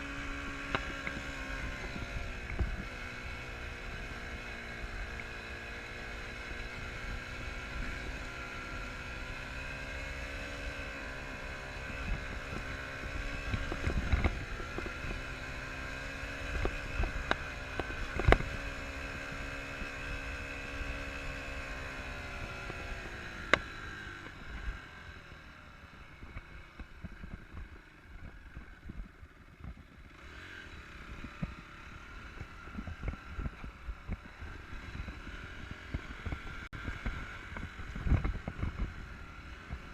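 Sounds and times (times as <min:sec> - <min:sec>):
dirt bike engine revving: 0:30.1 - 0:33.5
wind on microphone: 0:32.5 - 0:39.9.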